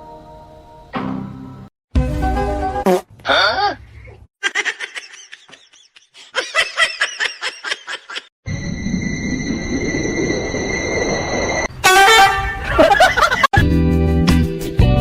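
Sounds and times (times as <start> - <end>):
high-pitched laughter: 4.4 - 8.3.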